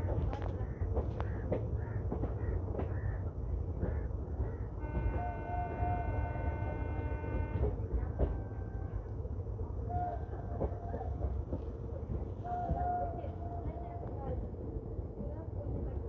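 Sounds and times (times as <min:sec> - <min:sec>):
train rumbling slowly: 0:00.0 - 0:16.0
train horn: 0:04.8 - 0:09.1.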